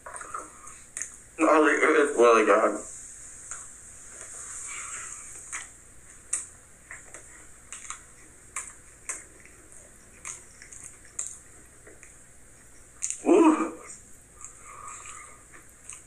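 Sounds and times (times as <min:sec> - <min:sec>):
person chewing with mouth smacks: 0:00.0 - 0:01.2, 0:04.9 - 0:16.0
faint hiss: 0:00.1 - 0:06.5.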